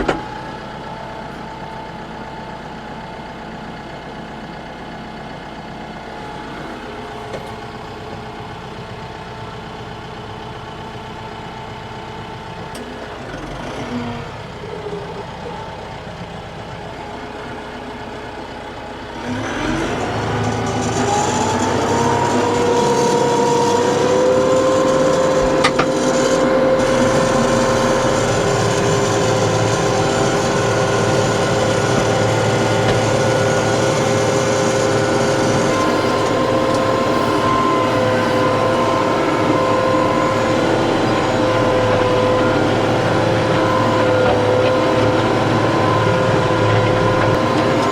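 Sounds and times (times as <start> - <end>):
tractor diesel engine running: 0.0 - 47.9
flail mower whine: 12.5 - 47.9.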